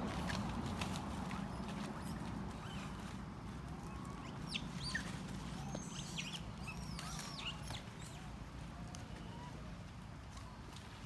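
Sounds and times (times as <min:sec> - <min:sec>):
birds chirping: 0:03.8 - 0:09.6.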